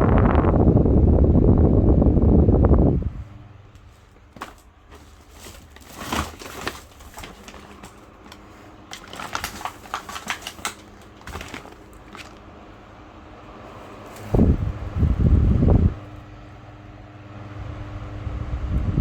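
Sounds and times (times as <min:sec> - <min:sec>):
low steady hum: 0:00.0 - 0:19.0
hands handling plastic parts: 0:03.7 - 0:12.5.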